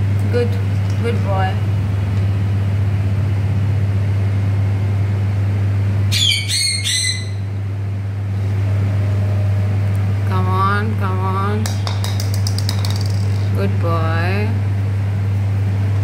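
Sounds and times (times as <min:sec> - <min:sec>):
steady low hum: 0:00.0 - 0:16.0
parrot squawking: 0:06.1 - 0:07.5.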